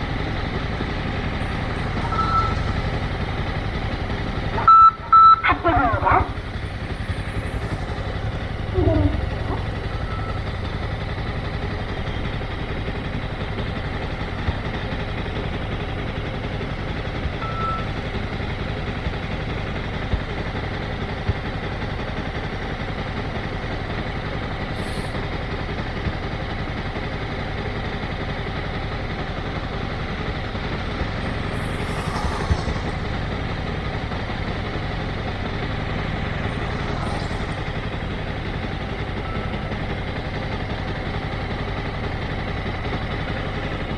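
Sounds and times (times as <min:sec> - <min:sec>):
motorcycle engine running: 0:00.0 - 0:43.9
high hissing puffs: 0:30.7 - 0:34.0.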